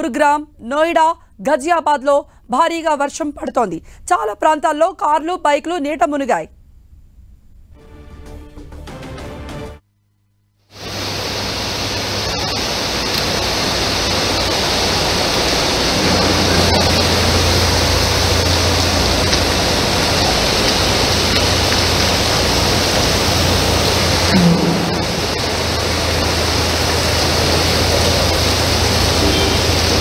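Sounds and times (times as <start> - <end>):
heavy rain pouring: 10.7 - 30.0
low rumble: 15.1 - 30.0.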